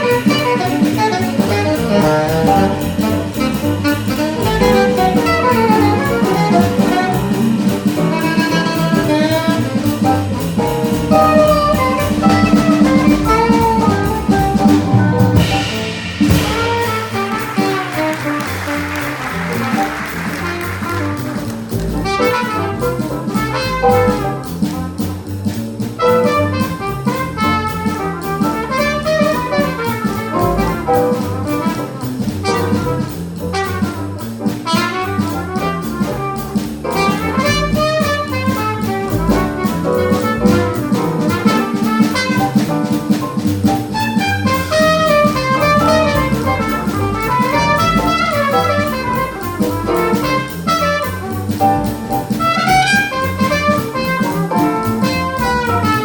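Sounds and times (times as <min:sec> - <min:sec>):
horn playing fast melodic lines: 0:00.0 - 0:24.2, 0:37.0 - 0:42.7, 0:43.9 - 0:56.0
bass: 0:00.0 - 0:56.0
drum kit cymbals: 0:00.0 - 0:56.0
piano: 0:00.0 - 0:56.0.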